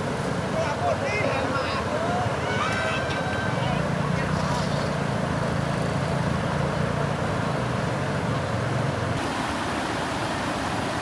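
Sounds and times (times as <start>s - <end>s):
floodwater rushing: 6.5s - 11.0s.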